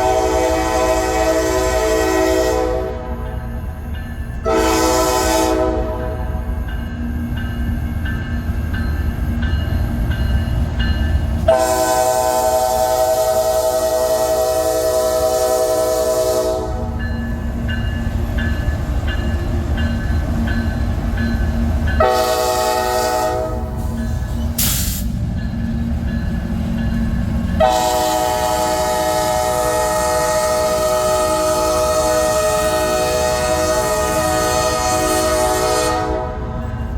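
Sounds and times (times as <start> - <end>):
train air horn blasts: 0.0 - 3.2, 4.4 - 6.5, 11.5 - 17.1, 22.0 - 24.0, 27.6 - 36.8
passing train rumble: 0.0 - 36.9
high hiss: 23.8 - 25.3.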